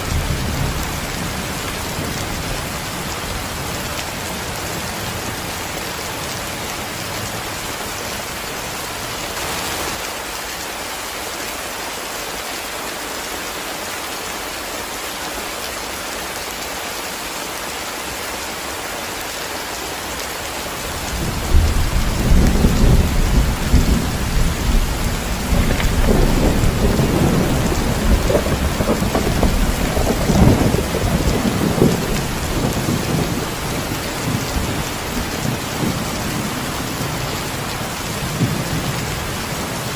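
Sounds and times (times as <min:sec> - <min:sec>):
thunder rumbling: 0:00.0 - 0:03.8, 0:20.9 - 0:39.9
heavy rain pouring: 0:00.0 - 0:39.9.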